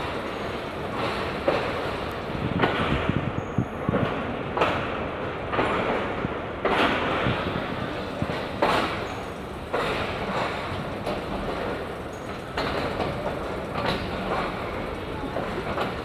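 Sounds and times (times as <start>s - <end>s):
train coach rumbling on rails: 0.0s - 16.0s.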